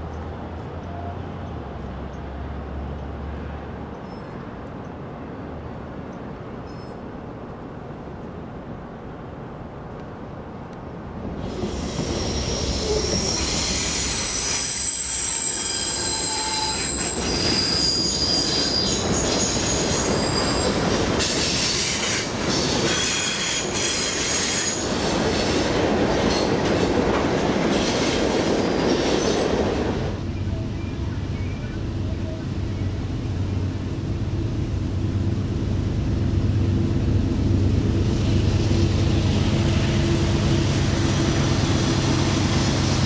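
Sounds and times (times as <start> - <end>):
freight train rumble: 0.0 - 43.0
wheels squealing: 11.6 - 22.1.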